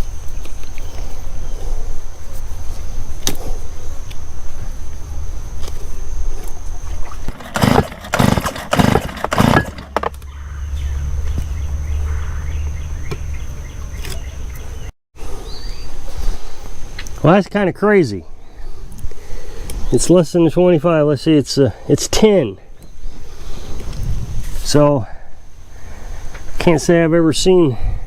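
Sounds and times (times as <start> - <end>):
engine starter cord pulled: 7.3 - 10.2.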